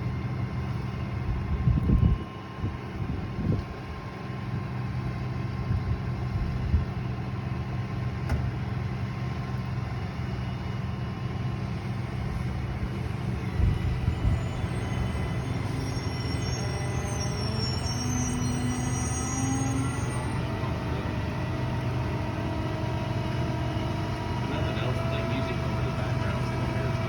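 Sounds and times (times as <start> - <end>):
vehicle engine idling: 20.4 - 27.0.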